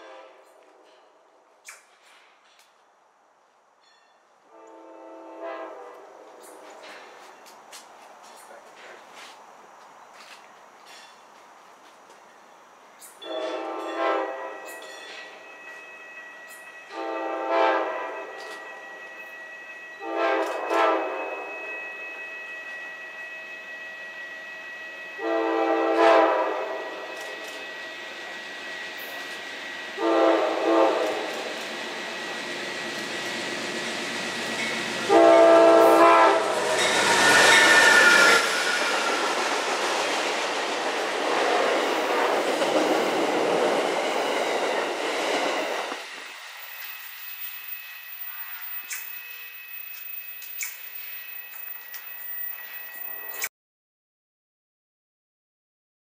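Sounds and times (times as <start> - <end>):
train air horn blasts: 0.0 - 1.2, 4.4 - 7.3, 13.2 - 27.8, 29.8 - 32.2, 33.0 - 39.5, 41.1 - 42.7, 48.2 - 49.1
train wheels and rail clatter: 0.0 - 2.9, 5.5 - 53.5.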